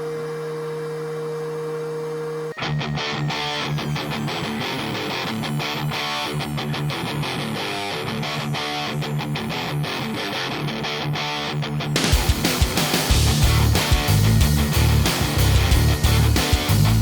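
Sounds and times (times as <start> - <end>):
guitar-led instrumental music: 2.5 - 17.0.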